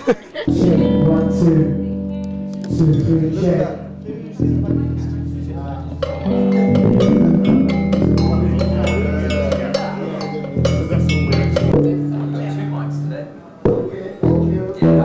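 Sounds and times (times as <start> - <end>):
band music: 0.5 - 15.0
low bass notes: 0.5 - 15.0
percussion strikes: 2.2 - 12.9.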